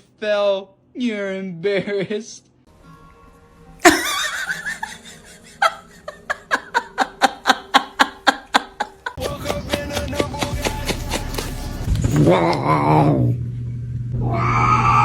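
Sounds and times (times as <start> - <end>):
person laughing: 3.8 - 11.5.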